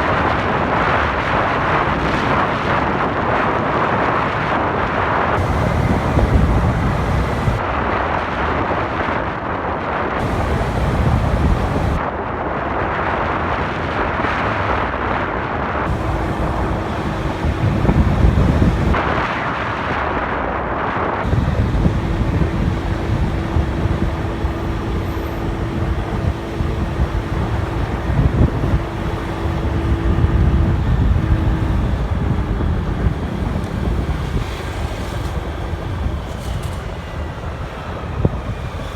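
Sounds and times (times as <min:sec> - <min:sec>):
wind rushing over microphone: 0:00.0 - 0:38.9
motorbike engine running: 0:05.4 - 0:07.6, 0:10.2 - 0:12.0, 0:15.9 - 0:19.0, 0:21.3 - 0:35.0
steady hum: 0:05.4 - 0:07.6, 0:10.2 - 0:12.0, 0:15.9 - 0:19.1, 0:21.2 - 0:33.2.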